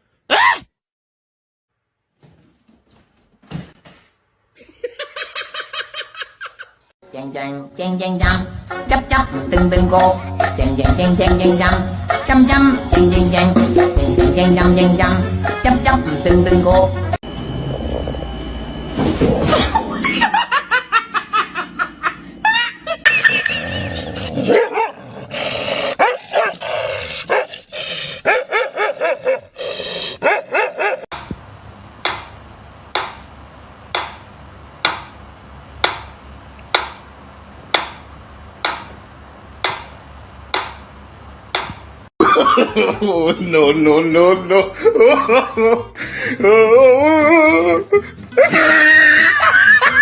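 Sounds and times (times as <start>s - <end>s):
dog barking and yipping: 24.5s - 25.0s, 26.0s - 26.6s, 27.3s - 27.5s, 28.2s - 29.6s, 30.2s - 31.1s.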